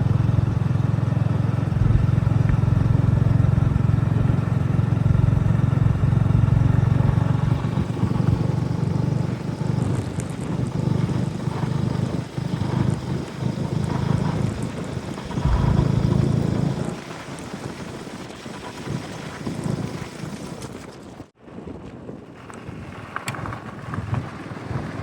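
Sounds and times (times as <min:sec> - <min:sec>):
engine running: 0:00.0 - 0:17.9.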